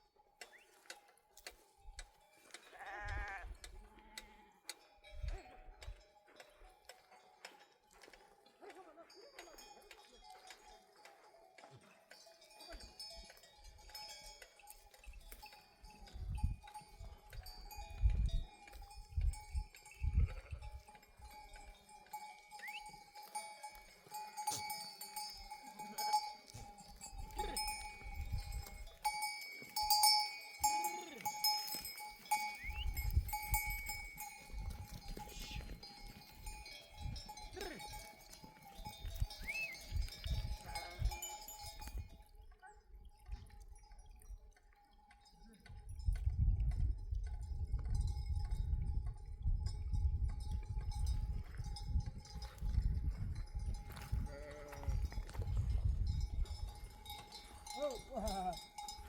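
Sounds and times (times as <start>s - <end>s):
sheep bells clanking: 0.0s - 59.0s
sheep bleating: 2.7s - 4.6s, 20.1s - 20.8s, 27.2s - 27.9s, 30.8s - 31.5s, 40.6s - 41.3s, 54.2s - 55.0s.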